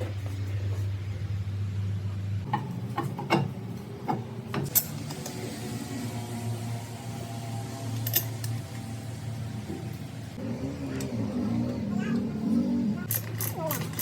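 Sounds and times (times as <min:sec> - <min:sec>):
sharp metal clinks and knocks: 0:13.1 - 0:14.0.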